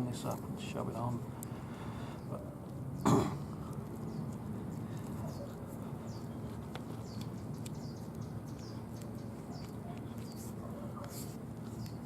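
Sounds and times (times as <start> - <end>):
steady low hum: 0.0 - 12.0
small bird chirping: 3.9 - 12.0.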